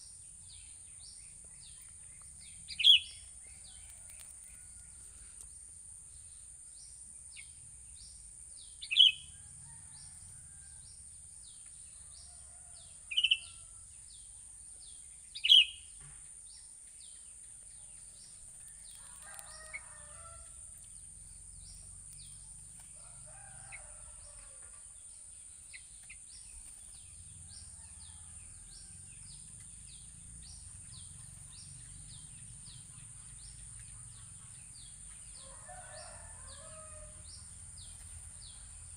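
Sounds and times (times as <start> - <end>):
distant rooster crowing: 9.0 - 11.0, 18.6 - 20.8, 22.9 - 24.8, 27.3 - 29.4, 35.4 - 38.9.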